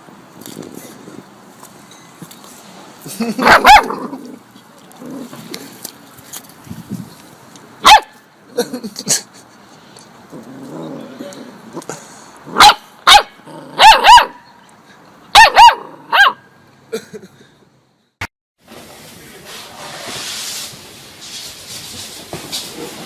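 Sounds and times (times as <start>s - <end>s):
dog barking: 3.4s - 4.1s, 7.8s - 8.2s, 12.5s - 14.4s, 15.3s - 16.5s
steady hissing noise: 18.6s - 23.0s.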